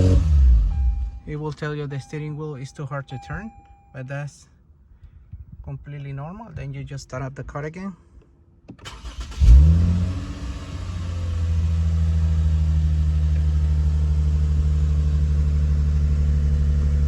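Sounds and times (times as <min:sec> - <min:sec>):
car engine starting and idling: 0:00.0 - 0:02.4, 0:08.7 - 0:17.0.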